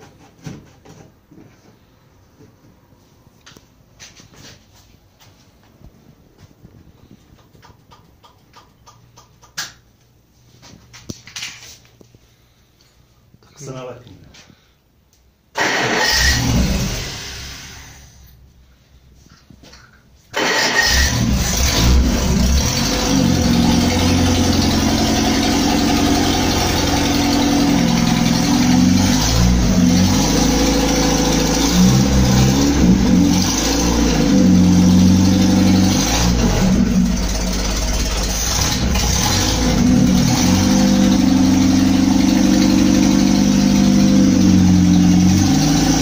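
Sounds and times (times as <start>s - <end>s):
car engine starting and revving: 15.6s - 18.2s, 20.4s - 46.0s.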